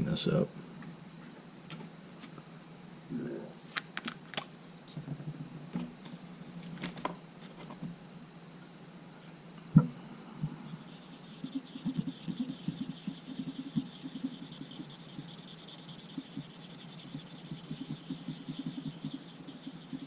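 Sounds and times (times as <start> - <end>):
scratchy rubbing: 10.4 - 20.0.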